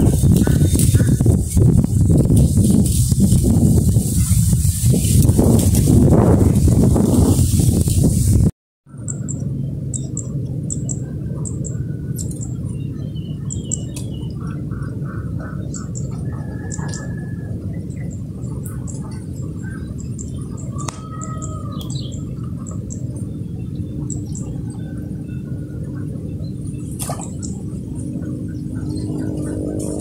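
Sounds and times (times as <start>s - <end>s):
steady low rumble: 0.0s - 30.0s
birds chirping: 8.9s - 30.0s.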